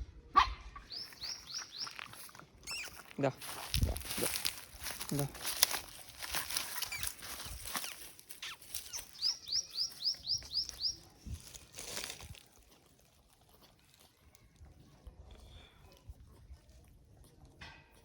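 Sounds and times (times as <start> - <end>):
bird chirping: 0.8 - 3.7, 4.4 - 11.2.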